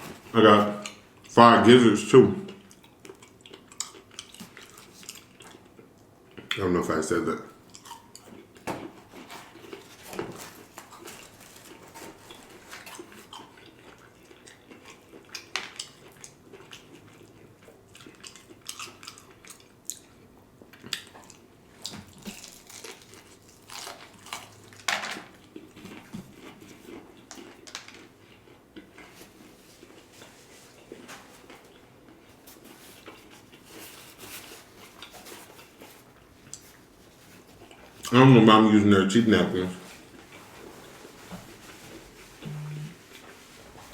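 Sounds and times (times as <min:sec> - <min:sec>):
wet chewing and biting: 0:02.6 - 0:06.5, 0:07.7 - 0:29.1.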